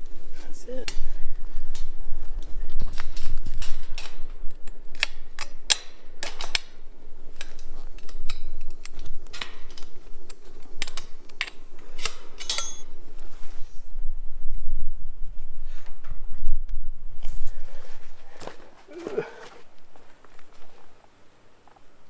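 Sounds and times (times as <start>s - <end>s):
metal fence hardware clinking: 1.7s - 13.5s.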